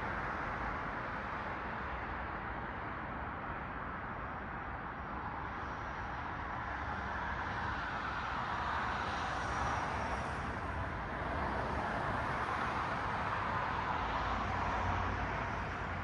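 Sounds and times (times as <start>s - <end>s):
cars passing on street: 0.0s - 16.0s.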